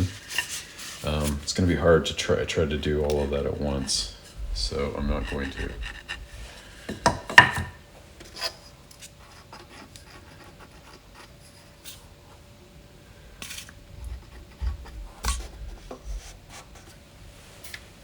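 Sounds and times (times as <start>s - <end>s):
wood rubbing and scraping: 3.3s - 8.6s.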